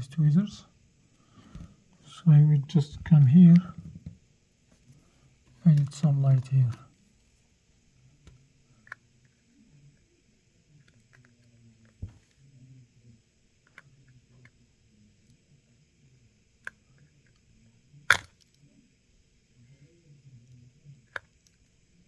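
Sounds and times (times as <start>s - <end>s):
sharp click: 18.1s - 18.4s.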